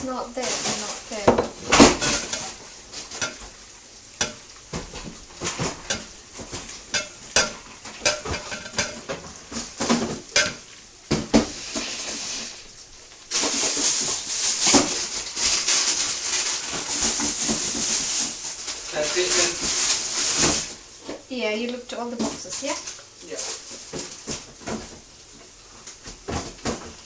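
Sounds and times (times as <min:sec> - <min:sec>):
frying sizzle: 0:00.0 - 0:27.0
metal utensils clattering on dishes: 0:00.4 - 0:03.5, 0:04.2 - 0:10.6.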